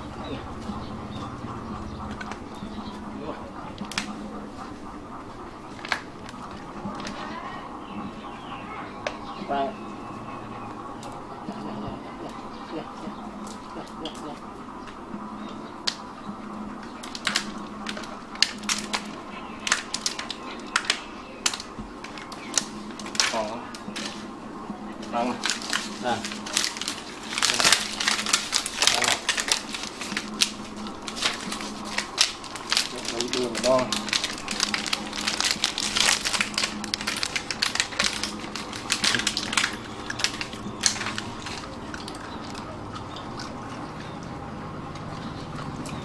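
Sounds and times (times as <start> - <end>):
dogs crunching hard biscuits: 0.0 - 7.5, 16.7 - 46.0.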